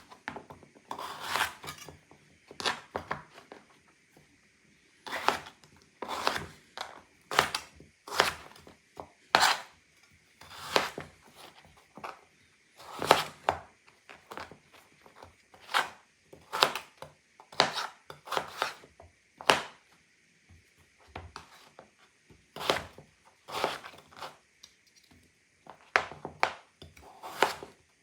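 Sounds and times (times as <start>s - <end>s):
knife slicing radish: 0.9s - 1.9s, 5.0s - 6.6s, 7.3s - 8.7s, 9.3s - 9.8s, 10.4s - 11.6s, 12.8s - 13.6s, 15.6s - 19.8s, 22.6s - 24.4s, 26.5s - 27.8s.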